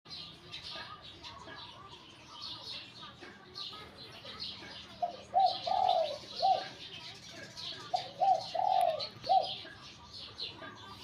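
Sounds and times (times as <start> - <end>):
small birds chirping: 0.1 - 11.0
dove cooing: 4.7 - 6.9, 7.7 - 9.8.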